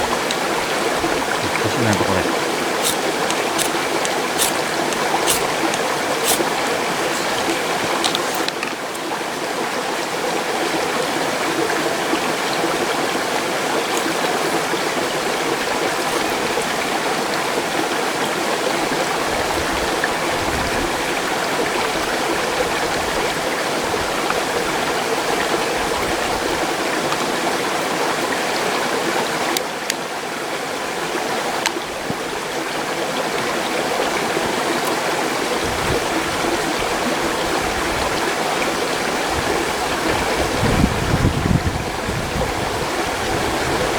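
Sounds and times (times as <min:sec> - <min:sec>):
mountain stream rushing: 0:00.0 - 0:19.2.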